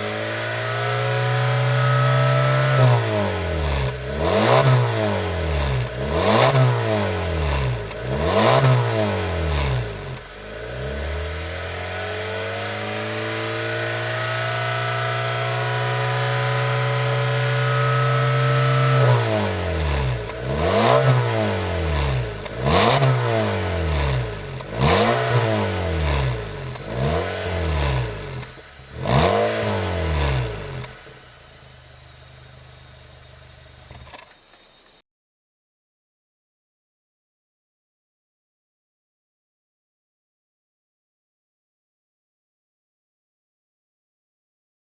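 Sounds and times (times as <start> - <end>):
car engine revving: 0.0 - 34.0
car engine idling: 9.2 - 17.2, 19.6 - 34.1.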